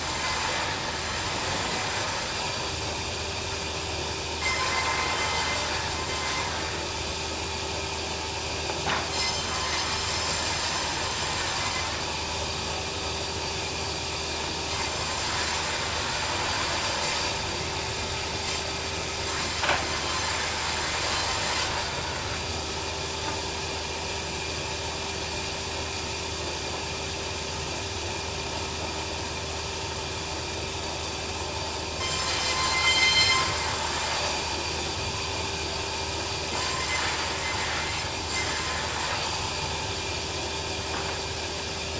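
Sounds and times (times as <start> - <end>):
saw blade cutting log: 0.0 - 2.5, 4.4 - 6.9, 8.8 - 12.2, 14.7 - 22.5, 32.0 - 34.7, 36.4 - 39.7
band sawmill humming: 0.0 - 41.9.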